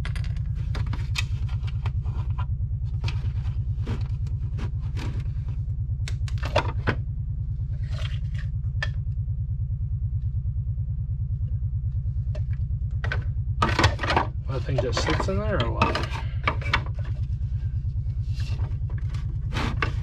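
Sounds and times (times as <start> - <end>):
pulsing machine hum: 0.0 - 20.0
plastic parts clicking and knocking: 12.4 - 17.2.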